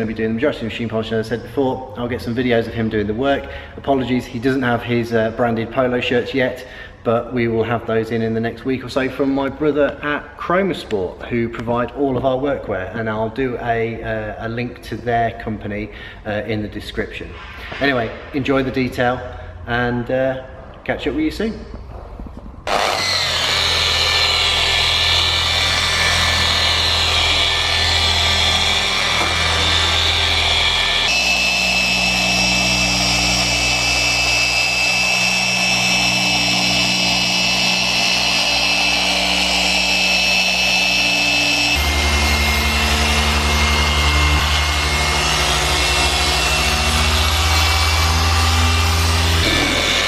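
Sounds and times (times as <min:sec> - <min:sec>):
polishing machine motor whine: 0:22.7 - 0:50.0.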